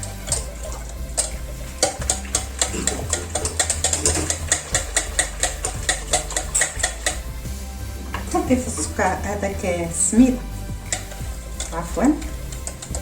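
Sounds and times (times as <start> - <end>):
whisk clicking against bowl: 0.0 - 7.3, 10.9 - 13.0
background music: 0.0 - 13.0.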